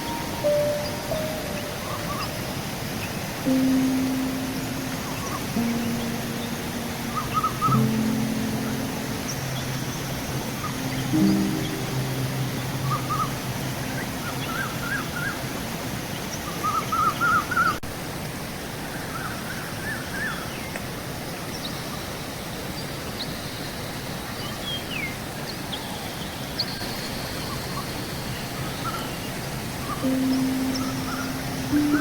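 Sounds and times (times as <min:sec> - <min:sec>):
thin high bird calls: 0:00.0 - 0:15.4, 0:26.7 - 0:32.0
birds chirping: 0:00.0 - 0:17.8, 0:26.7 - 0:32.0
flowing river water: 0:00.0 - 0:32.0.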